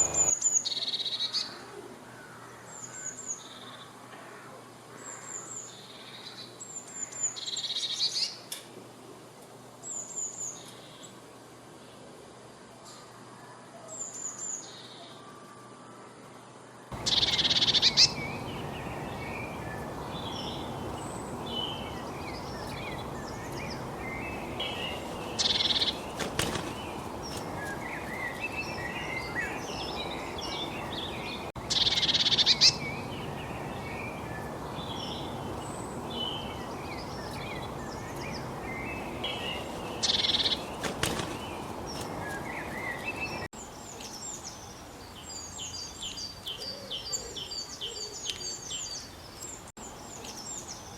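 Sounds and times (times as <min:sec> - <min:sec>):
songbirds chirping: 0:00.0 - 0:50.9
high bird calls: 0:16.9 - 0:44.6.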